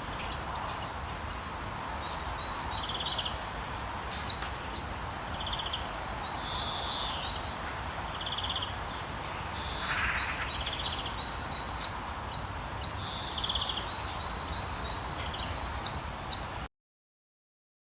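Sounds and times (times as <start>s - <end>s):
rain hissing: 0.0s - 15.9s
songbirds chirping: 0.0s - 16.7s.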